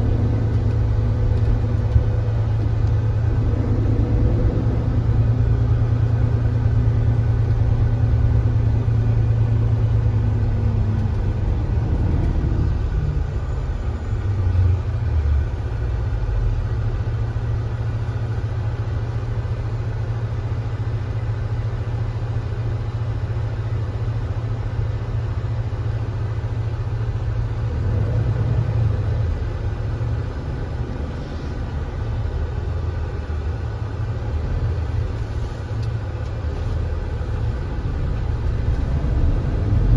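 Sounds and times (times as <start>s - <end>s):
coach engine running: 0.0s - 24.7s, 25.3s - 39.9s.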